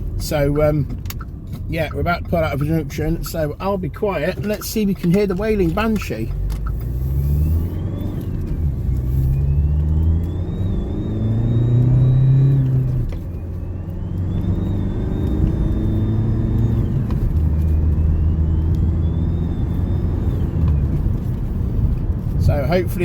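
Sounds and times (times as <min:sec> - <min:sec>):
diesel engine accelerating: 0:00.0 - 0:23.0
turbocharger wailing: 0:06.9 - 0:21.5.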